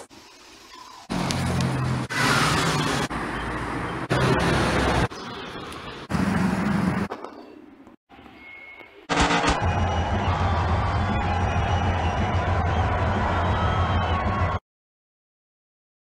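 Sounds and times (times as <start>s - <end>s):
traffic noise: 0.2s - 9.0s
car engines running: 1.1s - 7.1s.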